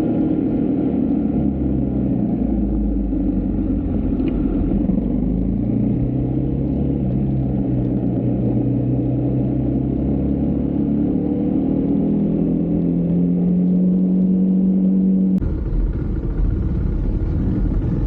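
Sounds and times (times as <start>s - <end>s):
motorcycle engine running: 12.3s - 18.0s.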